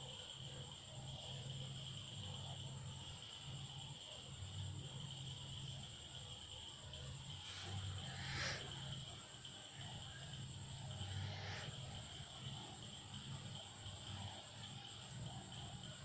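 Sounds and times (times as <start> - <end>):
crickets trilling: 0.0 - 16.0
breathy rasps: 7.5 - 9.0, 10.9 - 12.1.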